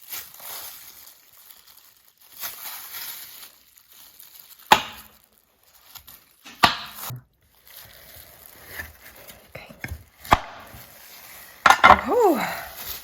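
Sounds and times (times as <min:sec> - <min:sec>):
knife chopping on cutting board: 0:06.5 - 0:07.1, 0:11.7 - 0:12.1.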